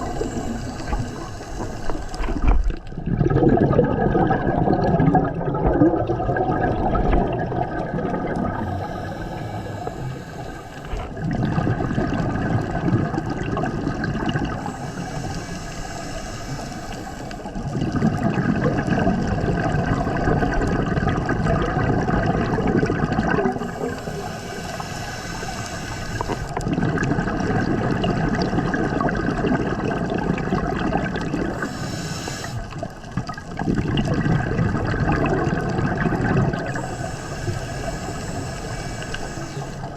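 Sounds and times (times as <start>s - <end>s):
regulator hissing inhale: 0.0s - 2.6s, 8.5s - 11.3s, 14.4s - 17.7s, 23.5s - 26.6s, 31.4s - 33.1s, 36.6s - 39.9s
exhaust bubbles gushing: 0.0s - 15.4s, 17.4s - 24.9s, 26.1s - 31.8s, 32.5s - 39.9s.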